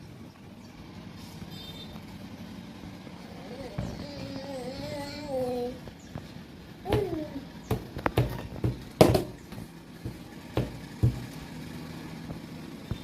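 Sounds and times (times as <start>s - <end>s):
short knocks and taps: 6.9s - 11.4s.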